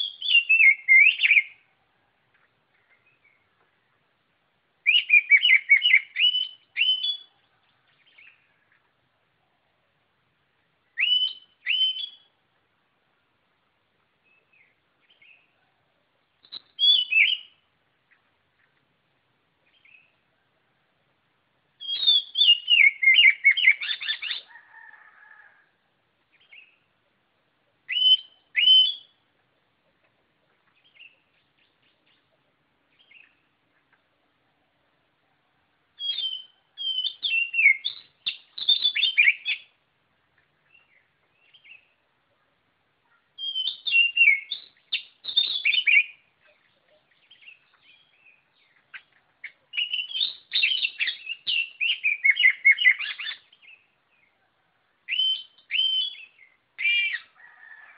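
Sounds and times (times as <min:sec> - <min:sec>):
bird singing whistled notes: 0:00.0 - 0:01.7, 0:04.8 - 0:07.4, 0:10.9 - 0:12.4, 0:16.4 - 0:17.7, 0:19.6 - 0:20.2, 0:21.8 - 0:24.5, 0:26.3 - 0:26.9, 0:27.9 - 0:29.2, 0:30.8 - 0:32.3, 0:32.9 - 0:33.5, 0:36.0 - 0:39.8, 0:40.7 - 0:42.0, 0:43.4 - 0:54.3, 0:55.1 - 0:57.4.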